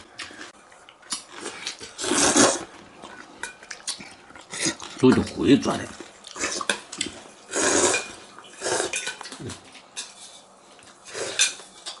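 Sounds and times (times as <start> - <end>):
people slurping noodles: 1.4 - 2.7, 7.5 - 9.0.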